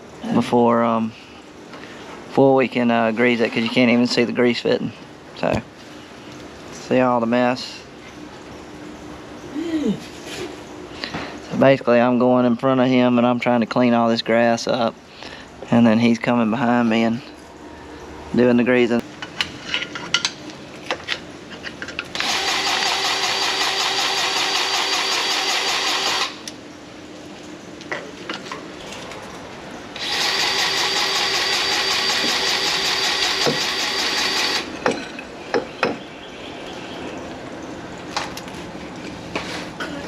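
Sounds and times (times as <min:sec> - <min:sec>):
small electric power tool running: 0:22.2 - 0:26.5, 0:30.0 - 0:34.7.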